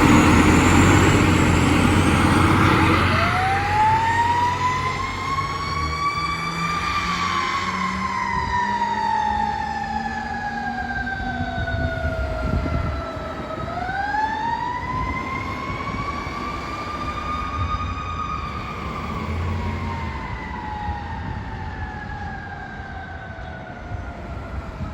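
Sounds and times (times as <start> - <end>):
truck engine running: 0.0 - 4.2
fire truck siren wailing: 0.0 - 24.9.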